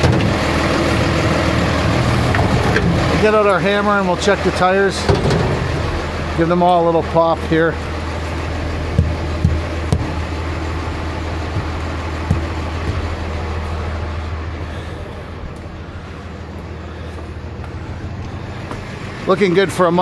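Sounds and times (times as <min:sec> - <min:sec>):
diesel truck engine idling: 0:00.0 - 0:20.0
hammer knocking on tires: 0:07.4 - 0:14.0.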